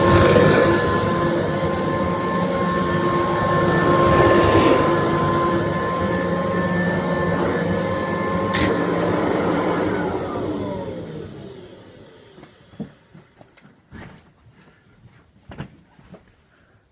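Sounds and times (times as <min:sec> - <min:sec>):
vacuum cleaner motor whine: 0:00.0 - 0:13.5.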